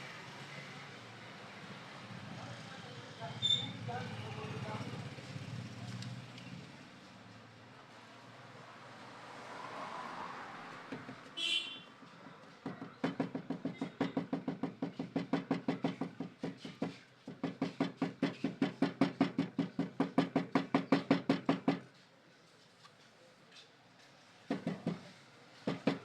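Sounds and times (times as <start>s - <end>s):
rapid even knocking: 12.6s - 21.8s, 24.5s - 26.0s.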